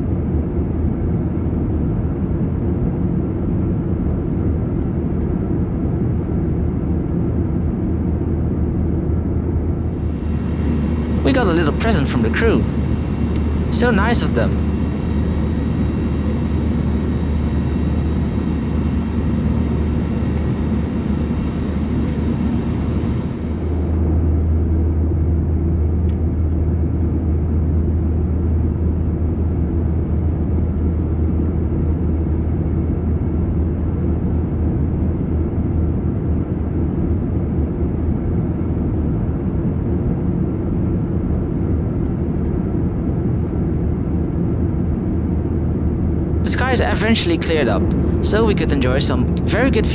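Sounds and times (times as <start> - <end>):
airplane cabin engine drone: 9.8 - 24.0, 45.2 - 49.9.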